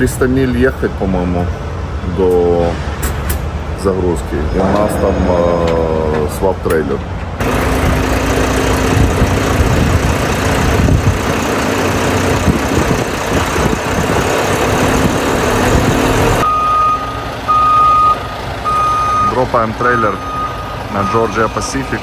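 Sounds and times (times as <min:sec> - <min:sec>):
truck engine and road noise: 0:00.0 - 0:22.0
reversing alarm beeping: 0:16.1 - 0:22.0.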